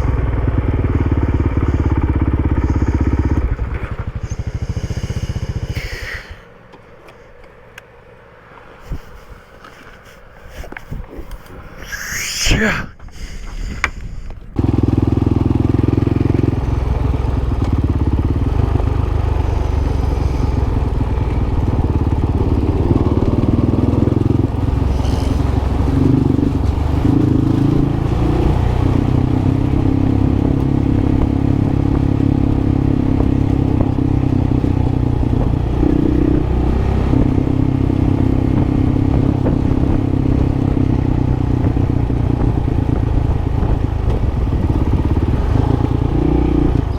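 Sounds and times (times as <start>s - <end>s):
motorcycle engine running: 0.0s - 11.7s, 13.7s - 46.9s.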